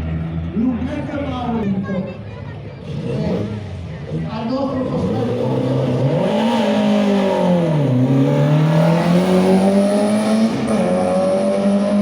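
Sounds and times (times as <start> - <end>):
car engine revving: 2.8 - 12.0.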